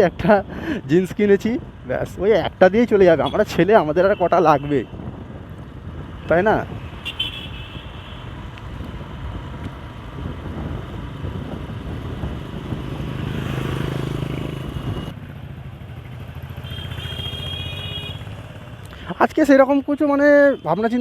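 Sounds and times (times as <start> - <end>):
motorcycle engine and road noise: 0.0 - 21.0
high horn beeps: 6.9 - 8.3.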